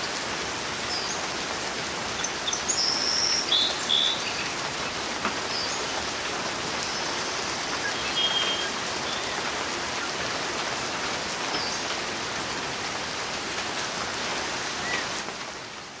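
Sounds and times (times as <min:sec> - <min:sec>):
steady rain falling: 0:00.0 - 0:16.0
bird chirps: 0:02.2 - 0:05.9, 0:06.9 - 0:10.1.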